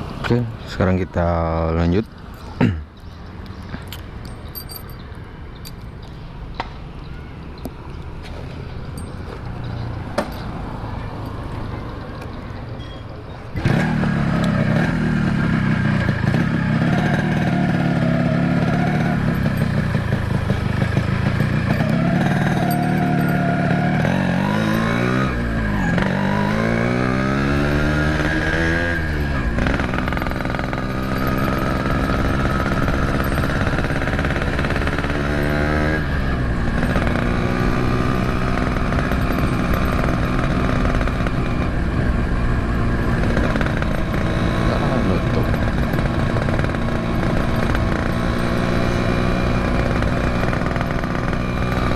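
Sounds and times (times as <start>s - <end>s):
two-stroke motorcycle engine: 13.6s - 51.9s.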